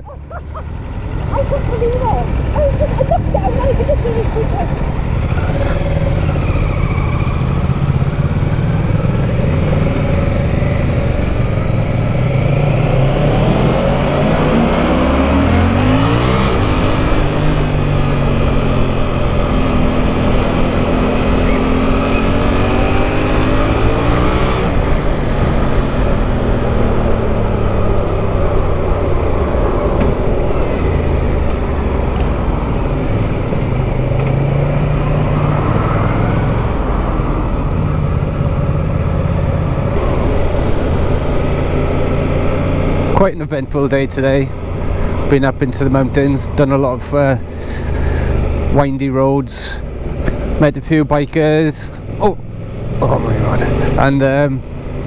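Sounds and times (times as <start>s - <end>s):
motorcycle engine running: 0.0s - 55.0s
wind rushing: 39.9s - 43.2s.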